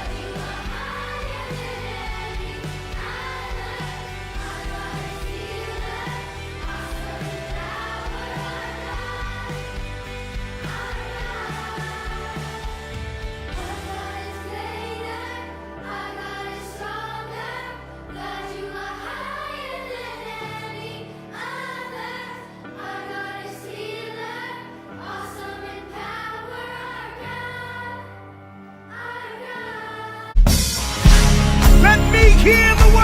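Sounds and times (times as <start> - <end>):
loud music: 0.0 - 14.4, 30.4 - 33.0
sustained keyboard chords: 0.0 - 15.2, 30.8 - 33.0
bass: 0.0 - 21.0, 30.4 - 33.0
voices singing together: 0.0 - 30.4.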